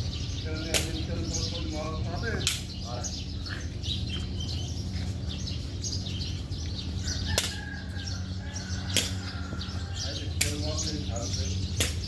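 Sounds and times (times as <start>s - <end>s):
small birds chirping: 0.0s - 12.0s
sharp snap: 0.7s - 1.0s, 2.4s - 2.7s, 7.4s - 7.6s, 8.9s - 9.2s, 10.4s - 10.6s, 11.8s - 12.0s.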